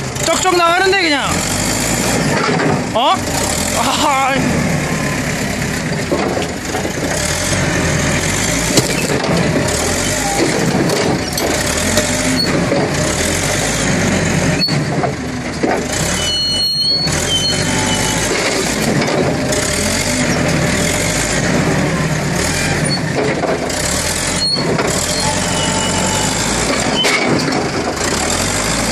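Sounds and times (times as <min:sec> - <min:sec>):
forklift engine running: 0:00.0 - 0:28.9
short high squeals: 0:16.1 - 0:18.3, 0:24.3 - 0:27.3.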